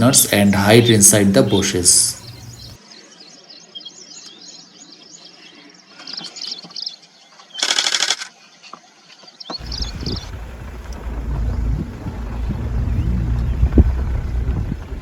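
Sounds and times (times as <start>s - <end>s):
small birds chirping: 0.0s - 15.0s
loud buzzy bird call: 0.2s - 2.8s, 9.6s - 14.4s.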